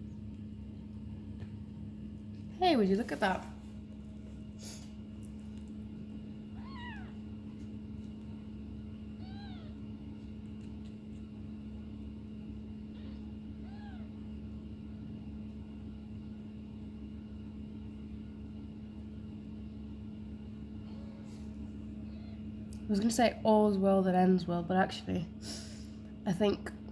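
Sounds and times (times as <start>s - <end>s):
steady low hum: 0.0s - 26.9s
kittens mewing: 6.5s - 7.4s, 9.1s - 10.0s, 12.9s - 14.2s.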